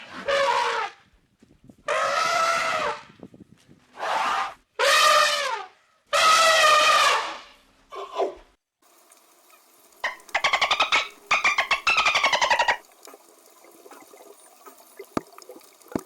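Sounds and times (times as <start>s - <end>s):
animal trumpet-like calls: 0.0s - 1.1s, 1.8s - 3.1s, 4.0s - 8.3s, 10.0s - 12.9s.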